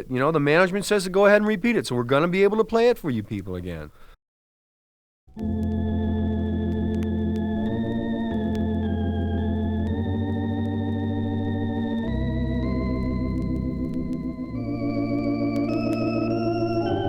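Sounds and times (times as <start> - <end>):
organ chords with vibrato: 5.4 - 17.0.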